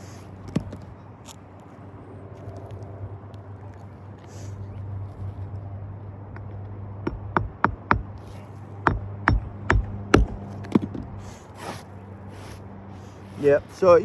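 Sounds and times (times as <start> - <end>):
steady low hum: 0.0 - 14.0
hammer knocks: 6.4 - 8.2, 8.8 - 11.2.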